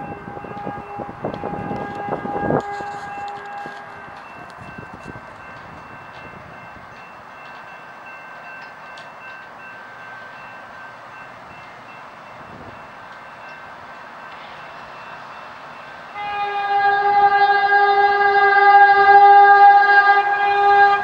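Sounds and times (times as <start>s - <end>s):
high ringing tones: 0.0s - 16.1s
train rushing past on rails: 0.0s - 21.0s.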